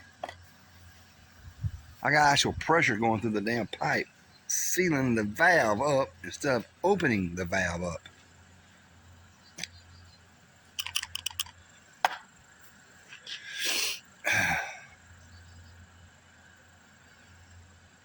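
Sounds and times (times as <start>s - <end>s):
handling clicks: 10.8s - 11.5s.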